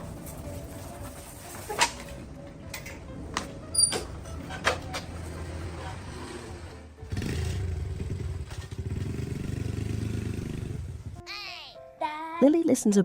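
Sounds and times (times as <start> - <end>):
motorbike engine starting and running: 3.0 - 11.2.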